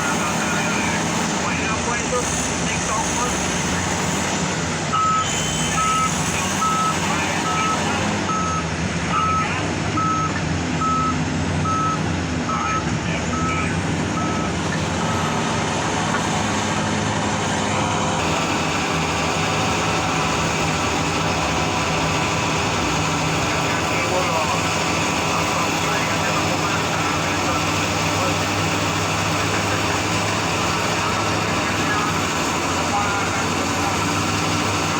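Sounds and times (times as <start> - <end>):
diesel engines droning: 0.0 - 34.9
reversing alarm beeping: 4.9 - 15.4.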